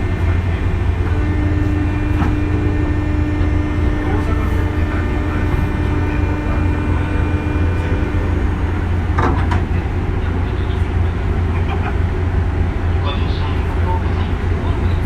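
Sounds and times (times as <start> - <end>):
electric train rumbling: 0.0 - 15.0
steady hum: 0.0 - 15.0.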